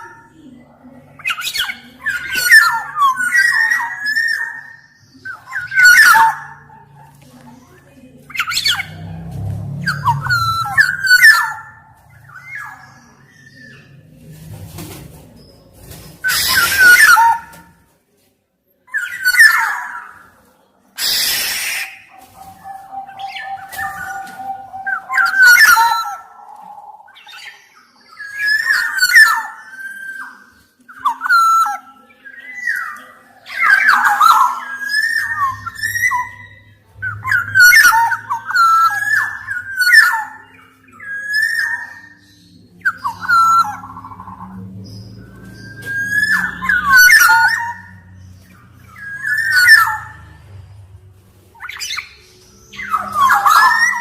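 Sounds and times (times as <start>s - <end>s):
harsh rasping bird calls: 0.0s - 17.8s, 18.9s - 50.9s, 51.5s - 54.0s
bird whistling fluty phrases: 21.0s - 44.6s.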